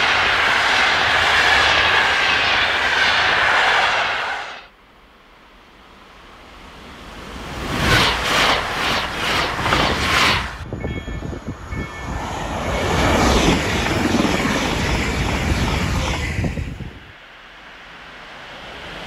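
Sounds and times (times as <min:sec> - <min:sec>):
electric train rushing past: 0:00.0 - 0:04.7, 0:05.6 - 0:19.0
second train rushing past: 0:00.0 - 0:04.8, 0:05.4 - 0:19.0
train wheel clatter: 0:07.7 - 0:11.2.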